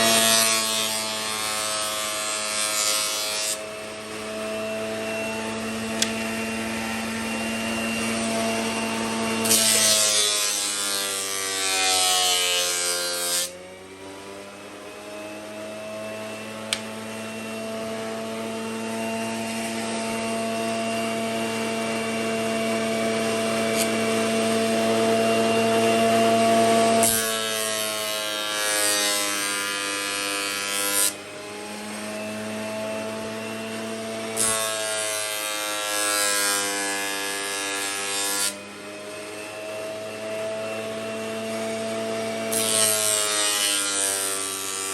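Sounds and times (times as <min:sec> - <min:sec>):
electric power tool humming: 0:00.0 - 0:44.9
power tool grinding: 0:00.0 - 0:44.9.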